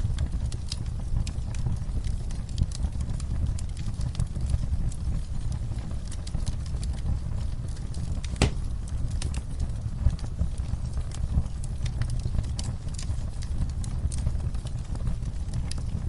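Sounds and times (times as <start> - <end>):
fireplace fire crackling: 0.0 - 16.0
low fire rumble: 0.0 - 16.0
sharp wood pop: 8.4 - 8.7.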